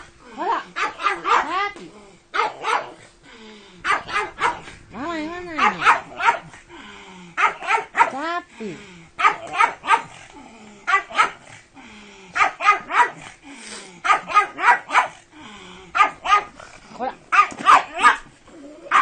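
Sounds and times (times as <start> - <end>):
dog barking in sharp bursts: 0.7 - 1.7, 2.3 - 3.0, 3.8 - 4.7, 5.5 - 6.6, 7.4 - 8.2, 9.2 - 10.2, 10.9 - 11.5, 12.4 - 13.3, 14.0 - 15.2, 15.9 - 16.6, 17.3 - 18.3.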